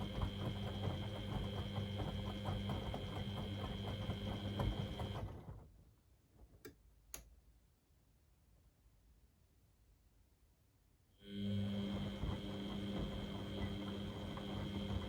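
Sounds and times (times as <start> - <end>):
washing machine drum motor running: 0.0 - 5.6, 11.3 - 15.0.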